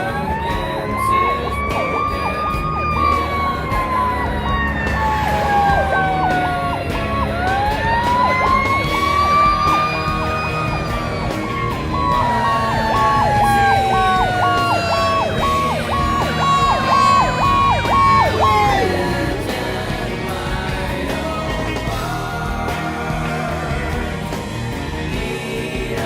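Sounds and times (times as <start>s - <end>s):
wailing siren: 0.0s - 20.0s
rapid chopping siren tone: 0.0s - 20.3s
truck engine rumbling: 0.0s - 26.0s.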